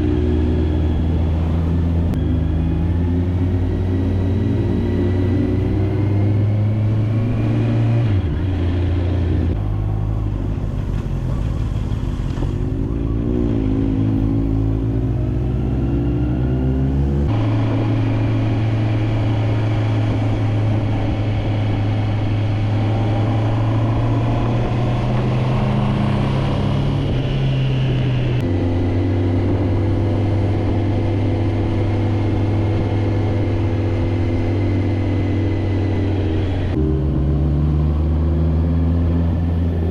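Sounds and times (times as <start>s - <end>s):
motorcycle engine running: 17.1s - 39.9s.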